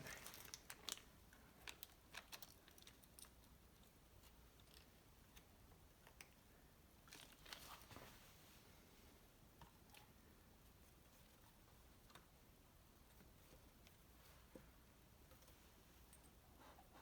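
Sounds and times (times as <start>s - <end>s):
faint clicks and taps: 13.0s - 17.0s.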